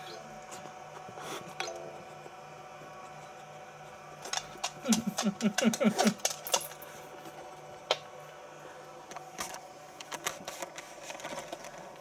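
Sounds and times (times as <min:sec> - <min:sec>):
faint steady hum: 0:00.0 - 0:12.0
dog claws clicking on hard floor: 0:04.3 - 0:06.8.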